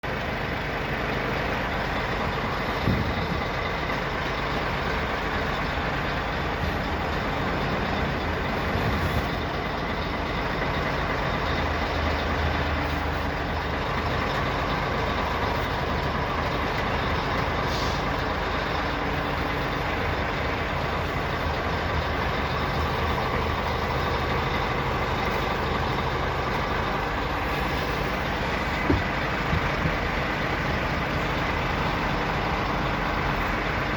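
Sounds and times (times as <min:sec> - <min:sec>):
truck engine running: 0:00.0 - 0:33.9.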